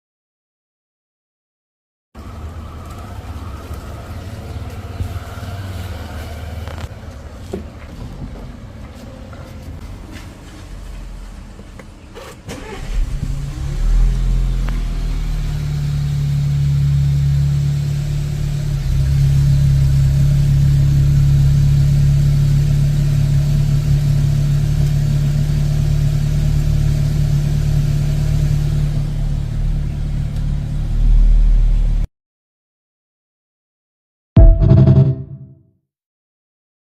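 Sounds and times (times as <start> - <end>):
car engine starting and idling loud: 11.5 - 31.0.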